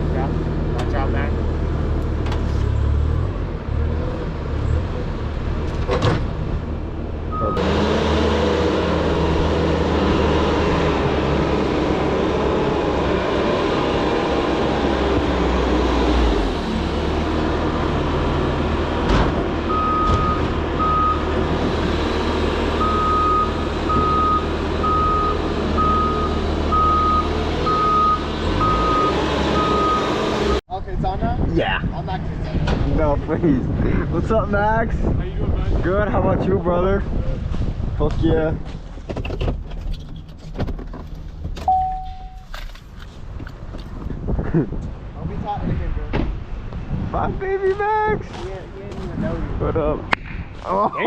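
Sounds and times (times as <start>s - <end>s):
heavy vehicle engine running: 0.0s - 30.6s
backup alarm beeping: 19.7s - 21.2s, 22.8s - 30.2s, 41.6s - 42.5s.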